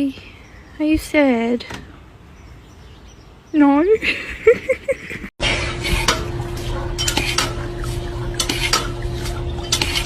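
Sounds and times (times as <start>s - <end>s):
steady hum: 5.4s - 10.0s
utensils clinking against dishes: 5.5s - 10.0s.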